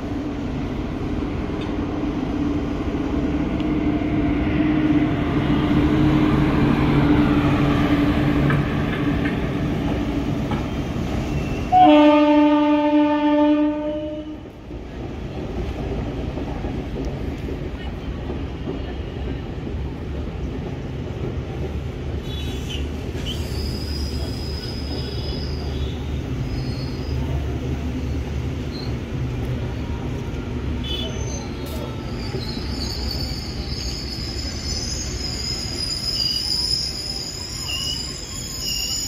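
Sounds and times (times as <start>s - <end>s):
train coaches rumbling: 0.0s - 39.0s
train wheel squeal: 10.5s - 11.8s, 22.2s - 29.1s, 30.8s - 39.0s.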